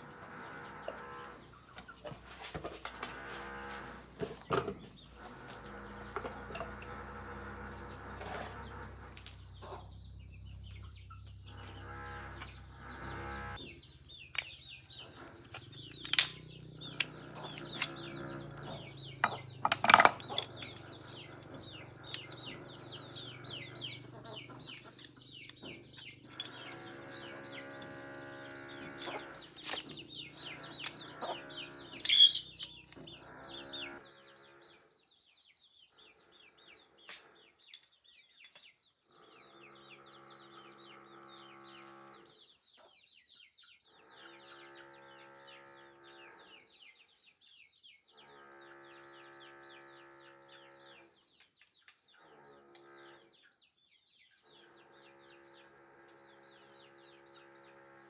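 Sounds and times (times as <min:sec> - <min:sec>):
hand tools knocking on metal: 0:15.4 - 0:31.4.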